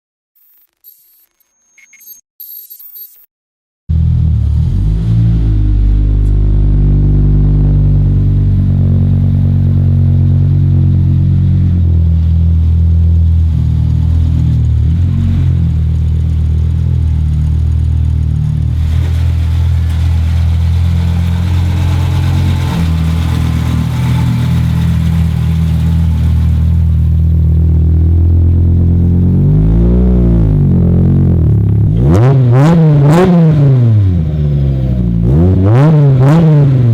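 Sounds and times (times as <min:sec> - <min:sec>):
car engine running at low revs: 0:03.9 - 0:36.9.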